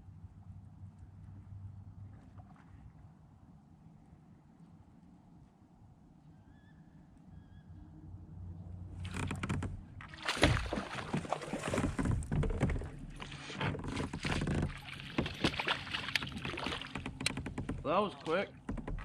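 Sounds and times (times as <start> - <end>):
water splashing: 9.0 - 19.0
knocks on kayak hull: 14.0 - 17.9, 18.6 - 19.0.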